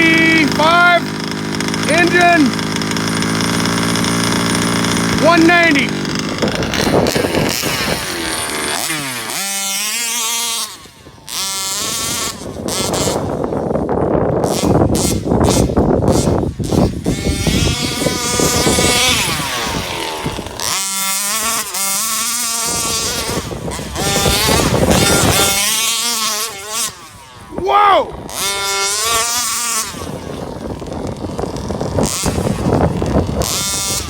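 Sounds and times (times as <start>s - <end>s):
small two-stroke engine revving: 0.0s - 34.0s
person shouting: 1.9s - 2.5s, 5.2s - 6.0s, 27.5s - 28.2s.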